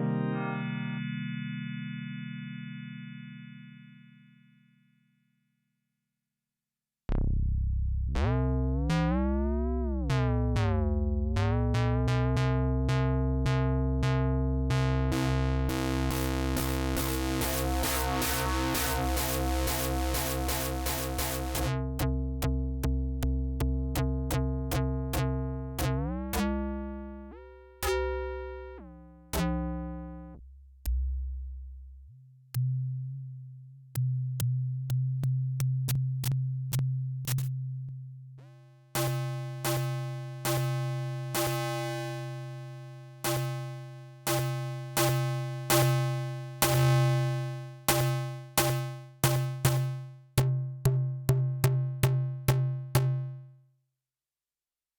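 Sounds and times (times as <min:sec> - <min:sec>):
synth sequenced notes: 0:00.0 - 0:04.4, 0:15.1 - 0:21.8, 0:39.0 - 0:42.5.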